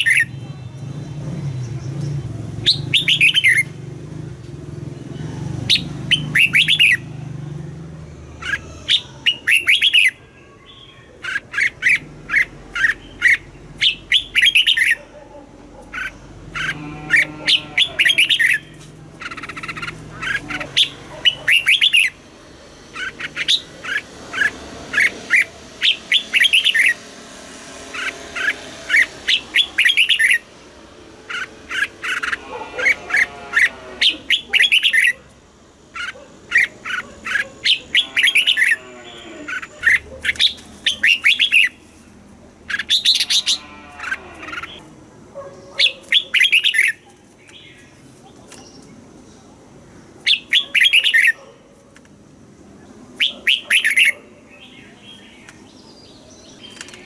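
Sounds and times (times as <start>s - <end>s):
harsh bird calls: 0.0s - 0.4s, 1.2s - 57.0s
bulbul singing: 0.0s - 15.2s, 15.8s - 35.3s, 36.0s - 44.9s, 45.7s - 51.4s, 52.7s - 57.0s.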